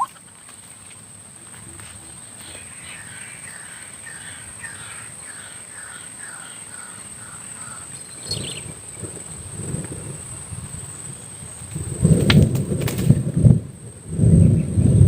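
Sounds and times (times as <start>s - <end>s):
waterhen calls: 0.0s - 0.4s, 2.4s - 8.8s.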